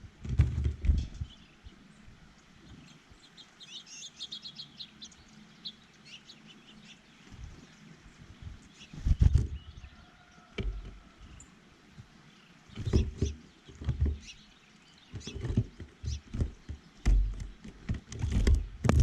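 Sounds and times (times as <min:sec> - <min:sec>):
small birds chirping: 0:00.0 - 0:19.0
dull thumps: 0:10.6 - 0:11.1, 0:15.2 - 0:19.0.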